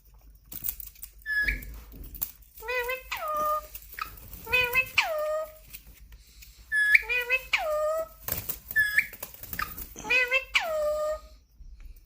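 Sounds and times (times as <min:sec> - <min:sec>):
parakeet calling: 0:02.6 - 0:05.6, 0:06.7 - 0:11.3.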